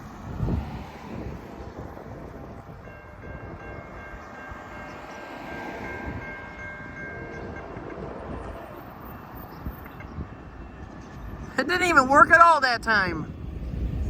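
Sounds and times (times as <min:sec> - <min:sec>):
steady low rumble: 0:13.3 - 0:14.0.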